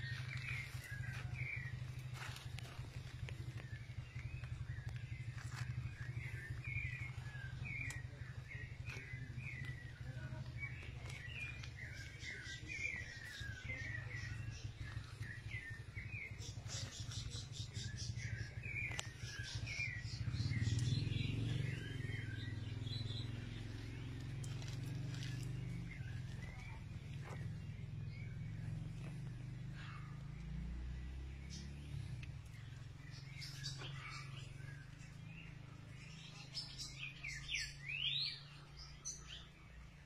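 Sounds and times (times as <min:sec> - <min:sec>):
low rumble: 0:00.0 - 0:36.0
steady low hum: 0:00.0 - 0:37.5
small birds chirping: 0:00.0 - 0:40.0.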